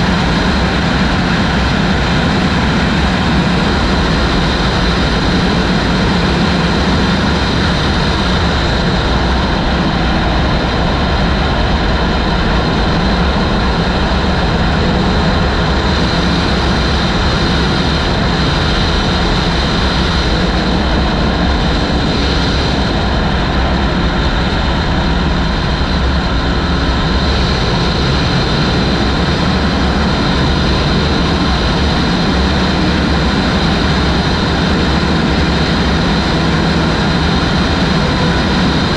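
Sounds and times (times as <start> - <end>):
motorcycle engine running: 0.0 - 38.9
wind rushing over microphone: 0.0 - 38.9.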